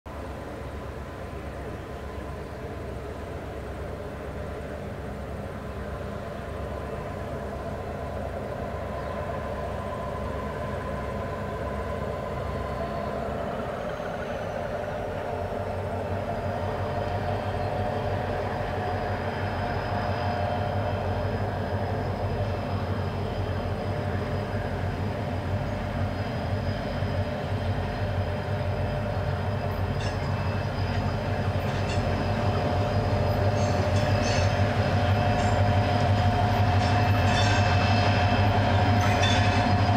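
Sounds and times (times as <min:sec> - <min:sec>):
diesel locomotive engine drone: 0:00.1 - 0:39.9
train wheel clicks on rails: 0:29.3 - 0:39.9.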